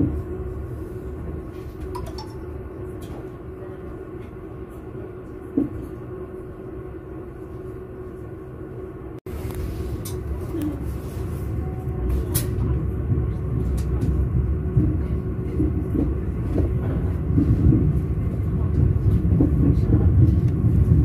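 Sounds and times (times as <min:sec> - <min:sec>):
train wheels on rails: 0:09.3 - 0:21.0.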